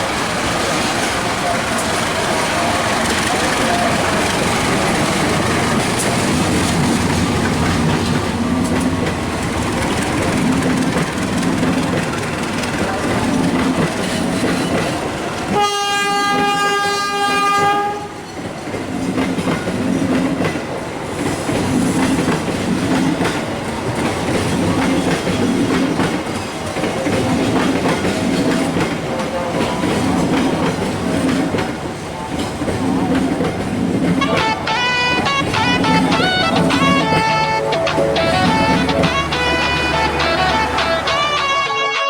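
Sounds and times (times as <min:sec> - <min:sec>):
train wheels clacking over rails: 0:00.0 - 0:41.7
train horn: 0:15.5 - 0:18.3, 0:34.1 - 0:42.0
guitar music: 0:34.2 - 0:42.0.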